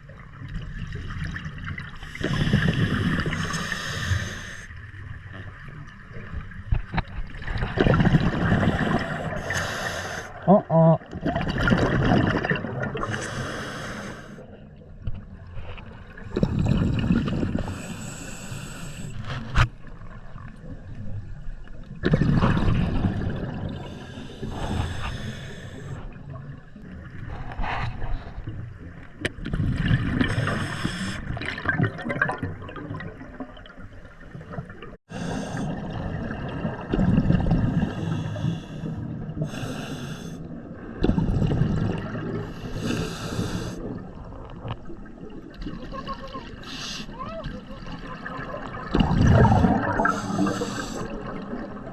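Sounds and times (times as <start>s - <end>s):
exhaled bubbles gushing: 7.2s - 13.3s, 16.0s - 17.9s, 21.9s - 27.8s, 29.2s - 39.6s, 40.6s - 51.9s.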